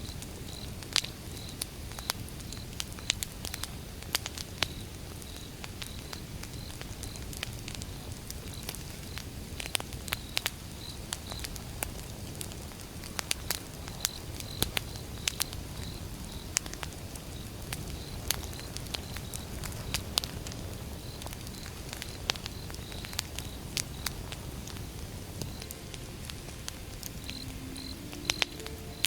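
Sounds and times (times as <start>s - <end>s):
wood fire crackling and popping: 0.0s - 29.0s
low rush of flame: 11.4s - 29.0s.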